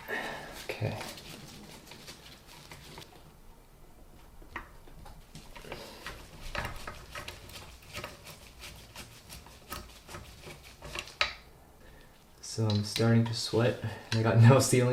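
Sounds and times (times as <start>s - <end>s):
scratchy scrapes: 0.2s - 3.2s, 5.4s - 11.4s.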